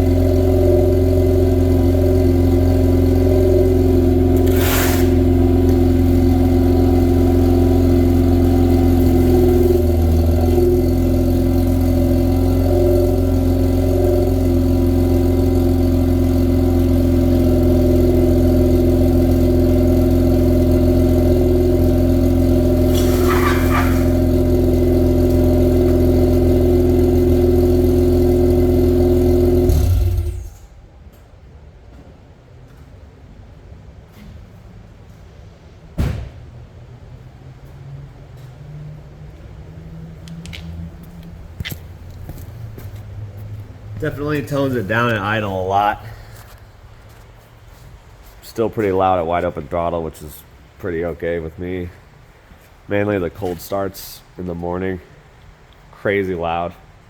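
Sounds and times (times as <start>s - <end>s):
rotary engine idling: 0.0s - 30.6s.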